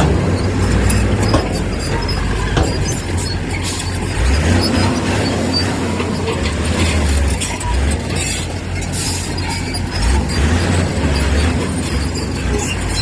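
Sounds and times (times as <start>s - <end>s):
diesel engine rumble: 0.0s - 13.0s.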